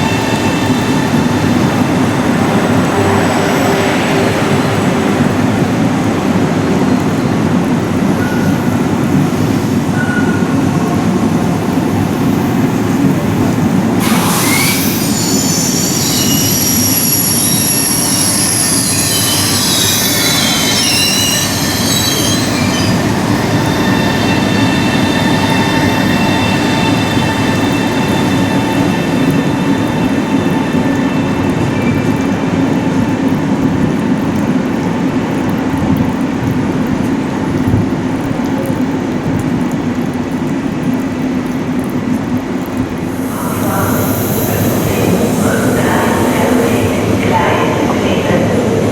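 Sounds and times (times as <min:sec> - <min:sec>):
electric train rumbling: 0:00.0 - 0:48.9
sudden rush of noise: 0:11.9 - 0:32.2, 0:43.0 - 0:48.9
steady high tones: 0:14.0 - 0:31.7, 0:43.1 - 0:48.6
high-pitched wheel squeal: 0:14.0 - 0:32.2.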